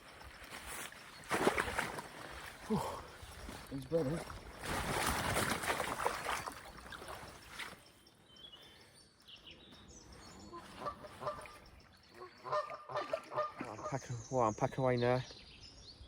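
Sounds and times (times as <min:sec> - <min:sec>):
small birds chirping: 0:00.0 - 0:16.0
geese honking: 0:10.5 - 0:11.6, 0:12.2 - 0:14.0.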